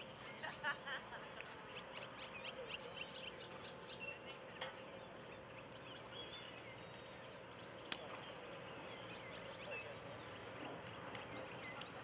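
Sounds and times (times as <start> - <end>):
birds chirping faintly: 0.0 - 12.0
steady background hum: 0.0 - 12.0.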